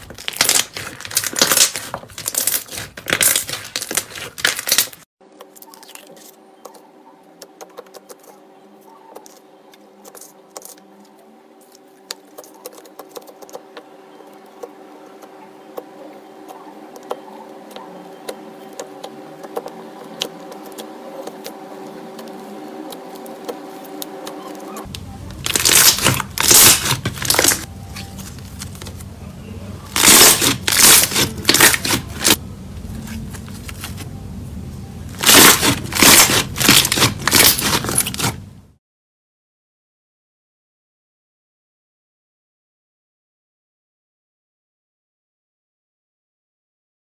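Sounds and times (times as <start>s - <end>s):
slime clicking and crackling: 0.0s - 5.0s, 25.4s - 29.1s, 29.9s - 32.4s, 35.1s - 38.4s
slime squishing: 0.0s - 5.0s, 18.7s - 29.2s, 29.8s - 34.1s, 35.1s - 38.5s
faint steady hum: 5.4s - 38.8s.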